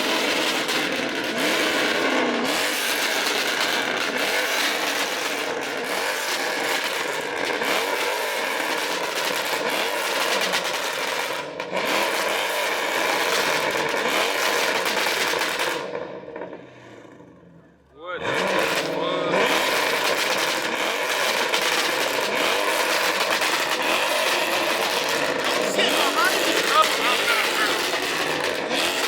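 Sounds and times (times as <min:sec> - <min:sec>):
car engines revving: 0:00.0 - 0:29.0.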